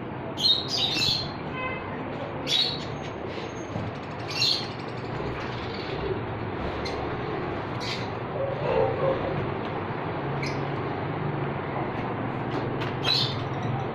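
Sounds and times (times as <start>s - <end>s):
birds chirping: 4.1s - 7.2s, 7.8s - 9.3s, 10.4s - 10.7s, 13.0s - 13.9s.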